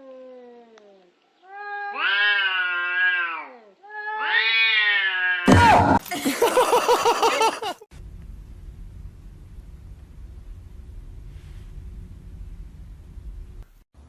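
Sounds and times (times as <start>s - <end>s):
cat meowing: 1.4s - 5.5s.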